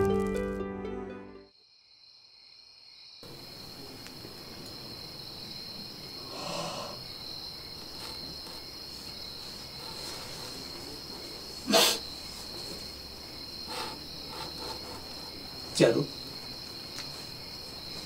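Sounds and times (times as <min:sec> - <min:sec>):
crickets chirring: 0:01.5 - 0:18.0
soft rustle: 0:07.7 - 0:13.4, 0:14.9 - 0:18.0.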